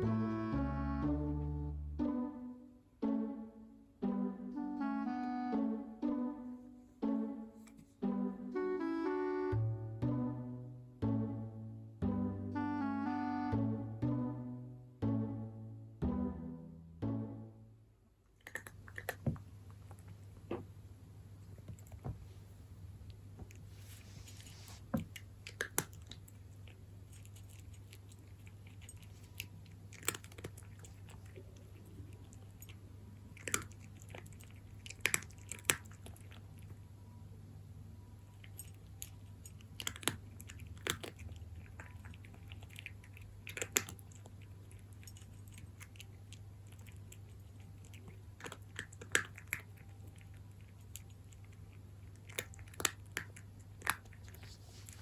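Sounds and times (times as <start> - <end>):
faint low hum: 0.0 - 55.0
cat crunching dry kibble: 18.4 - 20.5, 23.1 - 36.8, 38.3 - 55.0.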